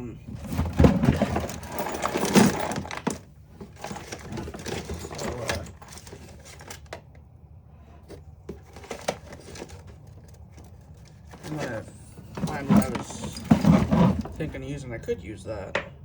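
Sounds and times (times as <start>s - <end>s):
metal tools clinking and clattering: 0.3s - 7.0s, 8.5s - 14.6s.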